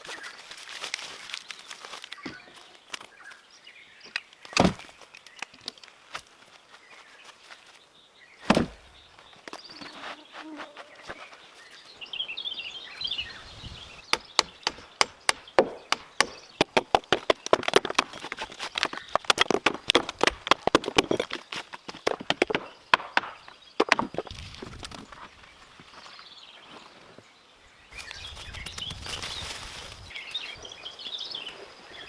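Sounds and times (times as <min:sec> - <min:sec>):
wood being chopped: 0:04.1 - 0:05.0, 0:08.4 - 0:08.9, 0:14.0 - 0:25.0.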